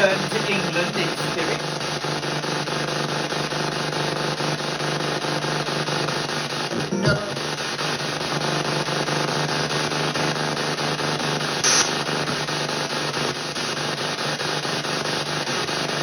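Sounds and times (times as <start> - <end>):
radio static chopping: 0.0 - 2.0, 11.1 - 15.1
snatches of broadcast sound: 11.5 - 12.4
bright hiss: 11.6 - 12.0.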